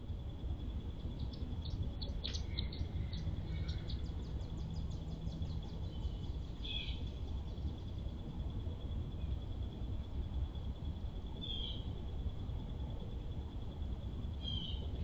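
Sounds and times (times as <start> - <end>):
low outdoor rumble: 0.0 - 15.0
small birds chirping: 1.0 - 8.0.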